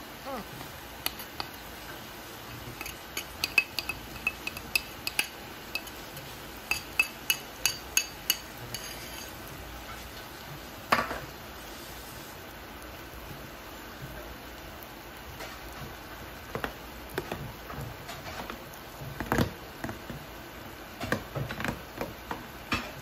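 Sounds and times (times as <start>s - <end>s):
metal utensil clinking on dishes: 2.7s - 9.4s.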